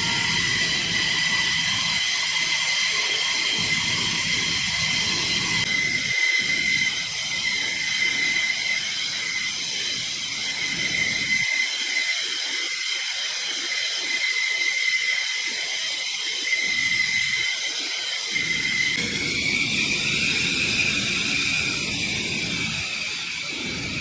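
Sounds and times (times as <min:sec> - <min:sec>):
jet engine high-pitched whine: 0:00.0 - 0:24.0.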